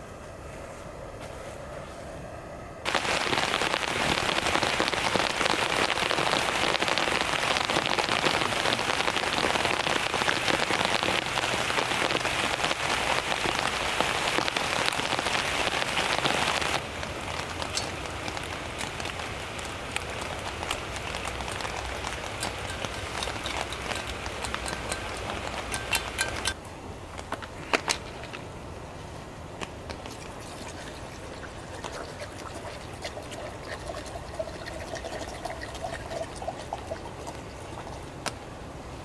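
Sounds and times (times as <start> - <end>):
rain hissing: 2.9 - 26.6, 30.0 - 38.3
raindrops ticking: 2.9 - 26.6.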